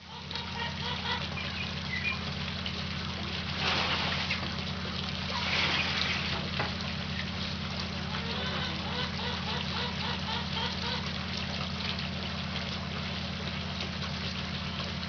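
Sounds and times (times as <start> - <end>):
steady low hum: 0.0 - 15.0
hummingbirds chittering: 0.2 - 2.4.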